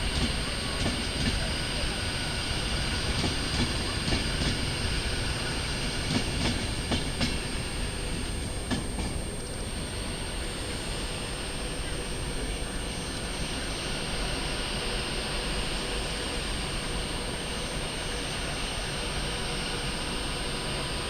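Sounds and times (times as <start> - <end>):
train wheels clicking over rail joints: 0.0 - 1.8, 2.4 - 9.5
train rumble: 0.0 - 21.0
train wheel squeal: 0.0 - 21.0.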